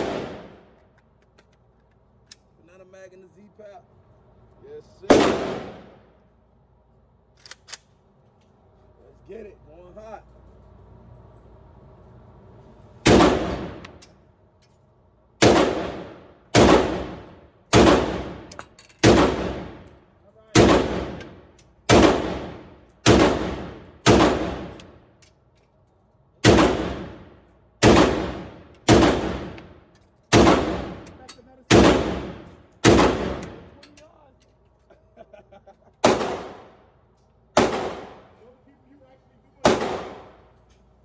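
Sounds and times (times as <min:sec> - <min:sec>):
rifle shots: 0:00.0 - 0:00.7, 0:05.1 - 0:06.0, 0:13.0 - 0:14.0, 0:15.4 - 0:19.9, 0:20.5 - 0:25.0, 0:26.4 - 0:29.7, 0:30.3 - 0:33.8, 0:36.0 - 0:36.8, 0:37.6 - 0:38.4, 0:39.6 - 0:40.4.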